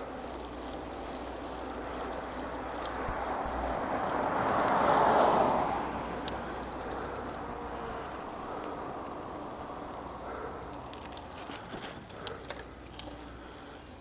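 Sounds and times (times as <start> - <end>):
car passing by: 0.0 - 10.6.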